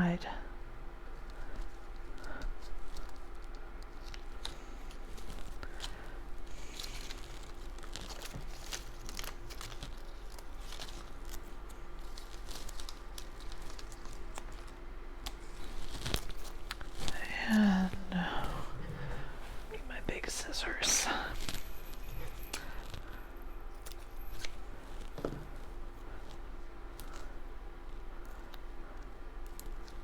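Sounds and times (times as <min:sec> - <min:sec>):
paper rustling and crinkling: 0:01.2 - 0:23.2.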